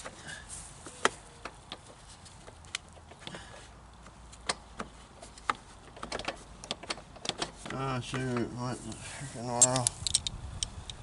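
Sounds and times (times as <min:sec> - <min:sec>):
clicks and knocks of tools: 0:04.0 - 0:09.0, 0:09.6 - 0:11.0.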